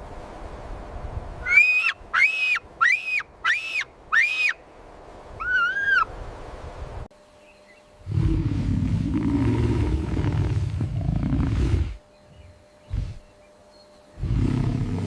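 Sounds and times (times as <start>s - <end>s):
animal whistle-like calls: 1.4s - 4.6s, 5.4s - 6.1s
lower animal call: 1.4s - 4.6s, 5.4s - 6.1s, 8.0s - 13.4s.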